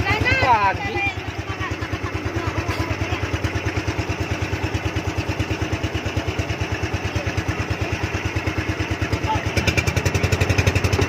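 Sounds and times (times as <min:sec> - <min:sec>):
boat engine chugging: 0:00.0 - 0:11.0.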